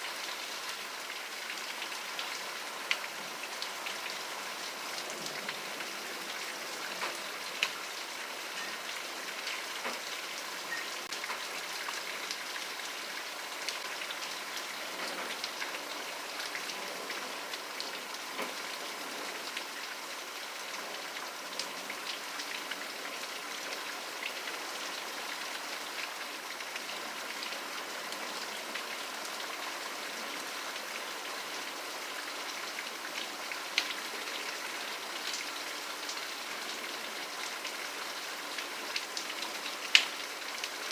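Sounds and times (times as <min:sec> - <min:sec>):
steady rain: 0:00.0 - 0:40.9
raindrops ticking close by: 0:00.1 - 0:29.9, 0:31.7 - 0:40.9.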